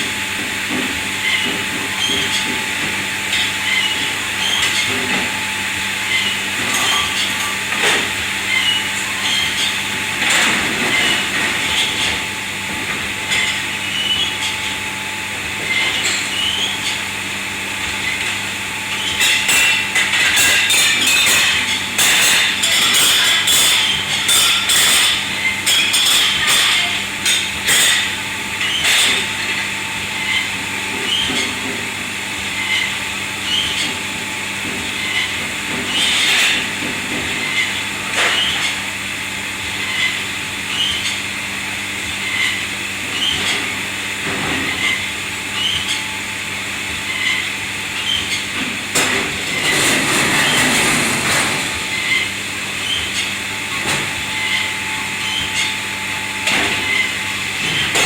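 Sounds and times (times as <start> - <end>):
kitchen machinery hum and hiss: 0.0 - 58.0
dishes and metal clattering: 6.7 - 8.0, 19.0 - 28.1.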